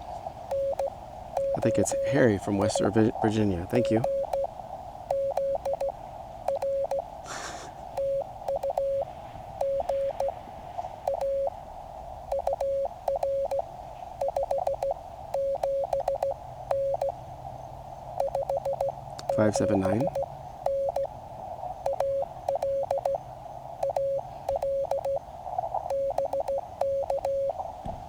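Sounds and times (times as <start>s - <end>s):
receiver hiss: 0.0s - 28.0s
morse code tone: 0.5s - 4.5s, 5.1s - 7.1s, 8.0s - 10.4s, 11.1s - 11.5s, 12.3s - 13.6s, 14.2s - 17.2s, 18.2s - 21.1s, 21.8s - 23.2s, 23.8s - 25.2s, 25.9s - 27.6s.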